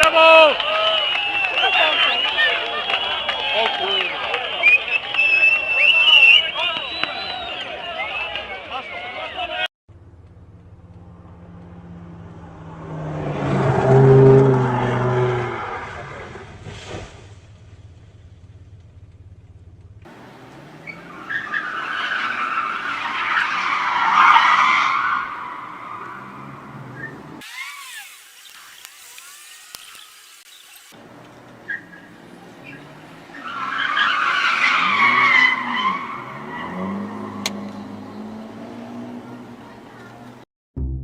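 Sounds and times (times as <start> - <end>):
tyres skidding: 0.0 - 40.4
car engine passing: 9.9 - 28.4, 31.0 - 40.4.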